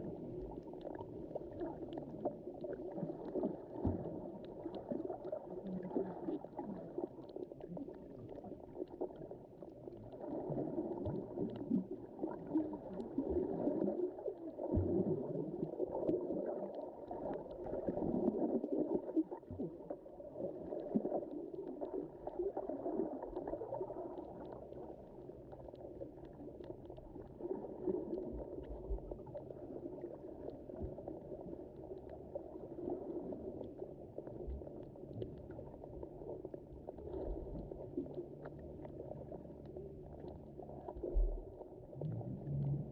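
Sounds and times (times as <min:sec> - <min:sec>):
muffled underwater water rush: 0:00.0 - 0:42.9
faint crackling ticks: 0:23.2 - 0:27.4, 0:33.6 - 0:41.4.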